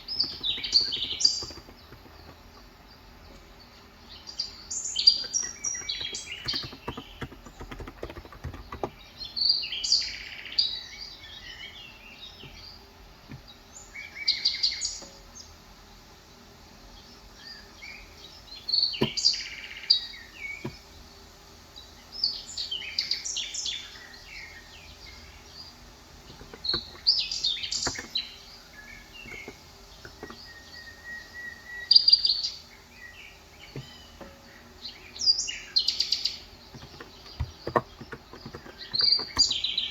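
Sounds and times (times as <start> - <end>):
small birds twittering: 0.0 - 39.9
soft keyboard keystrokes: 0.1 - 2.5, 5.2 - 9.0, 26.3 - 27.1, 27.8 - 28.2, 36.7 - 39.7.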